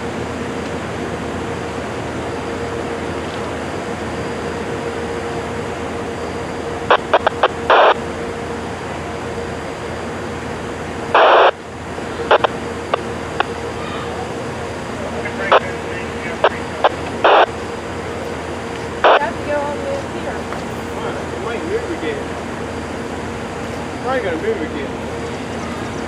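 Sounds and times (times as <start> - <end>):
mechanical drone: 0.0 - 26.0
radio squelch static bursts: 6.9 - 8.0, 11.1 - 11.6, 12.2 - 13.6, 14.9 - 20.5.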